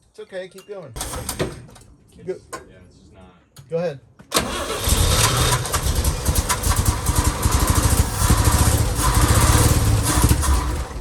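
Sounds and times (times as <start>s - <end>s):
engine firing unevenly: 4.3s - 11.0s
engine starter cranking: 4.3s - 11.0s.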